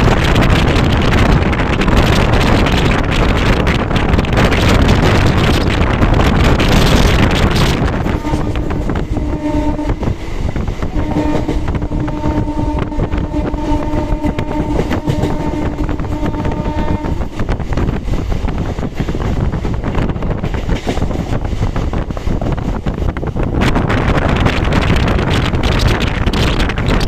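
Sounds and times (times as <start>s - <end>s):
train rumble and rail clatter: 0.0s - 27.0s
wind on microphone: 0.0s - 27.0s
train horn blast: 7.8s - 10.2s, 10.8s - 17.4s.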